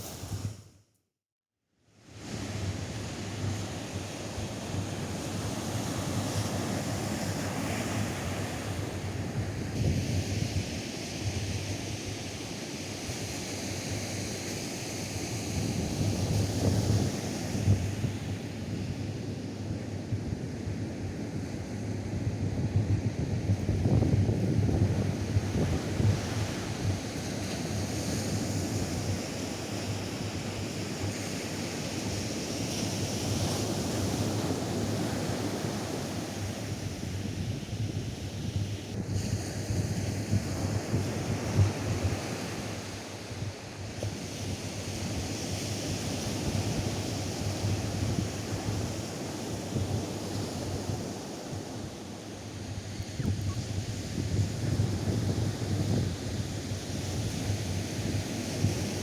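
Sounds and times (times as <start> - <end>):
wind on microphone: 0.0 - 0.7, 15.1 - 59.0.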